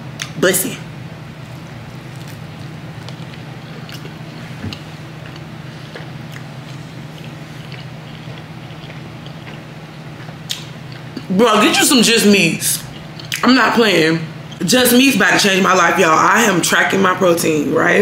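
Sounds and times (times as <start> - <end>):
steady low hum: 0.0 - 18.0
wet mouth chewing clicks: 1.5 - 11.3, 12.8 - 13.4.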